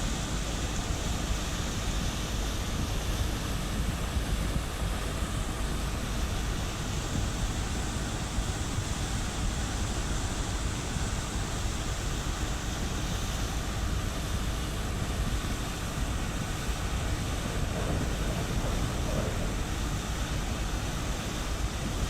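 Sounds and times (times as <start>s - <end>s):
ship engine rumble: 0.0s - 22.0s
wind buffeting microphone: 13.5s - 22.0s.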